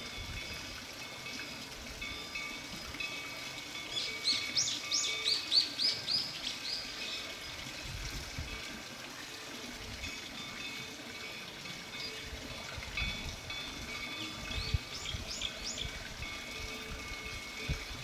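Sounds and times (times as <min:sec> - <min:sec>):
soft outdoor hiss: 0:00.0 - 0:18.0.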